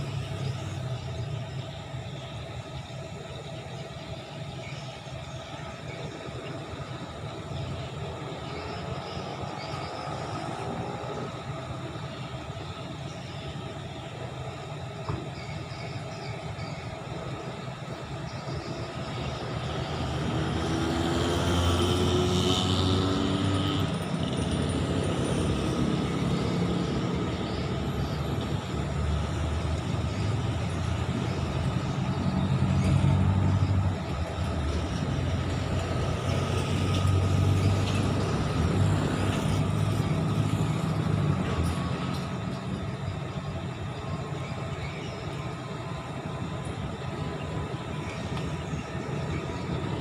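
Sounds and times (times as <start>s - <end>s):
traffic rumble: 0.0s - 50.0s.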